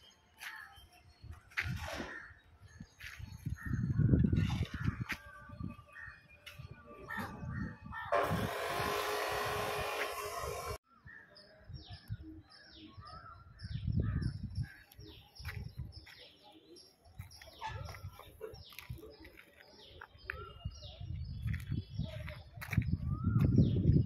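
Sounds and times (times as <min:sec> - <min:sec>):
loud rushing hiss: 0:08.2 - 0:10.8
small birds chirping: 0:10.9 - 0:24.0.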